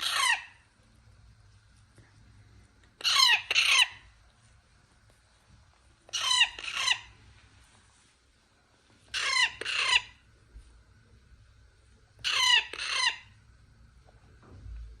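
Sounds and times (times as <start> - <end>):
parrot chick squawking: 0.0 - 0.6, 3.0 - 4.0, 6.1 - 7.2, 9.1 - 10.2, 12.2 - 13.4.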